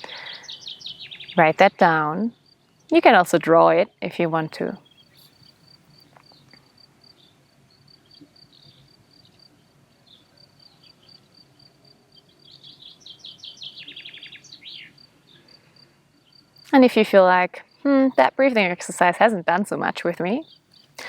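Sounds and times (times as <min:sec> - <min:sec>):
bird chirping: 0:00.0 - 0:16.7, 0:20.2 - 0:21.0
crickets chirping: 0:02.3 - 0:02.9, 0:04.8 - 0:16.7, 0:17.4 - 0:19.0, 0:20.2 - 0:21.0.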